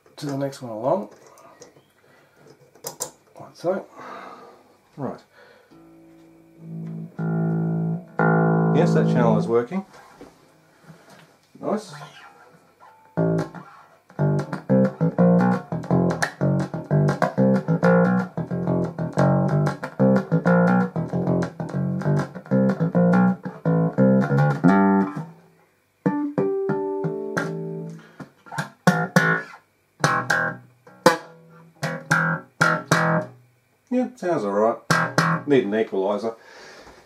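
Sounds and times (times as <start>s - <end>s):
electric bass guitar plucked notes: 5.8s - 9.6s, 13.1s - 25.4s, 26.0s - 33.4s, 34.9s - 35.5s.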